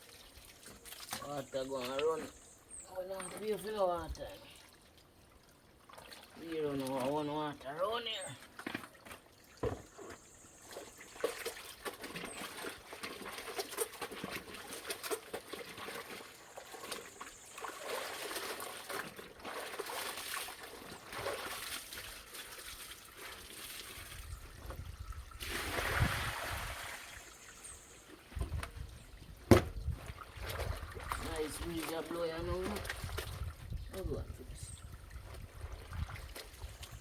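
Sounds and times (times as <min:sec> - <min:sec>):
small splashes and knocks: 0:00.0 - 0:02.5, 0:03.1 - 0:07.6, 0:08.2 - 0:37.0
water trickling from a pipe: 0:00.0 - 0:37.0
wind rumbling on microphone: 0:24.1 - 0:26.9, 0:28.4 - 0:31.7, 0:32.4 - 0:37.0.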